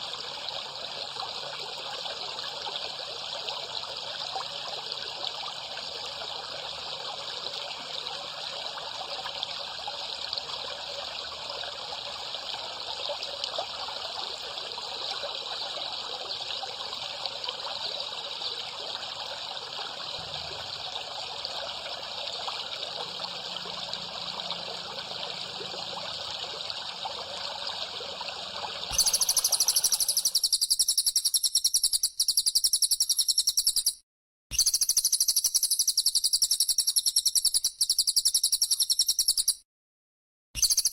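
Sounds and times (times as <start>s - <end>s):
water trickling: 0.0s - 30.4s
high-pitched pulsing buzzing call: 28.9s - 34.0s.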